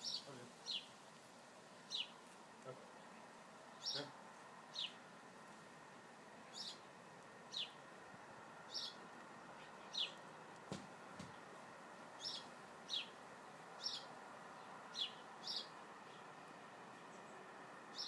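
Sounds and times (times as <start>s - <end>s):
small bird calling: 0.0s - 1.0s, 1.8s - 2.2s, 3.0s - 5.0s, 6.4s - 7.8s, 8.6s - 11.5s, 12.1s - 16.3s
faint outdoor hiss: 0.0s - 18.0s.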